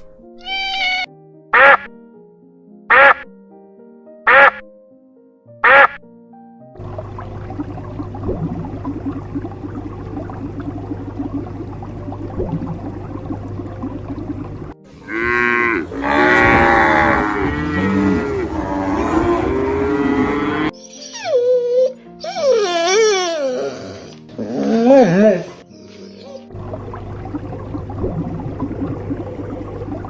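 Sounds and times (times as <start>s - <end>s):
low hum: 6.8s - 20.7s
cattle mooing: 15.0s - 20.8s.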